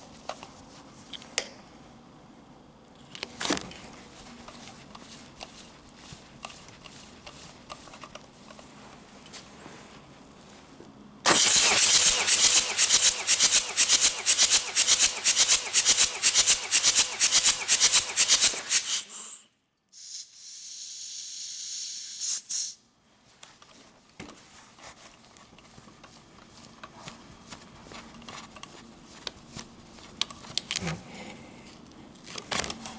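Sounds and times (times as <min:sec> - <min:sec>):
diesel engine cranking on starter: 0:11.3 - 0:19.4.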